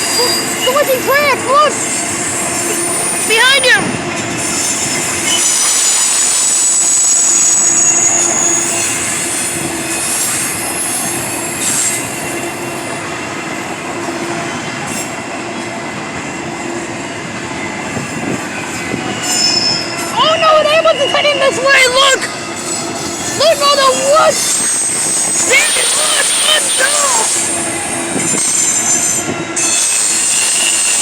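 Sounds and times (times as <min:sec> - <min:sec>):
train cars rumbling: 0:00.0 - 0:31.0
train wheels squealing: 0:00.0 - 0:31.0.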